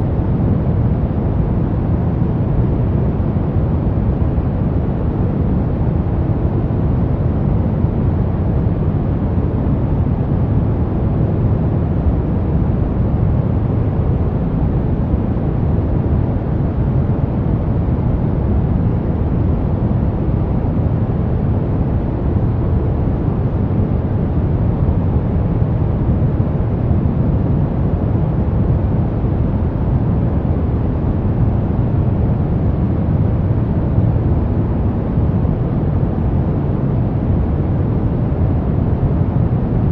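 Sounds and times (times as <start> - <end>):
brown noise: 0.0 - 39.9.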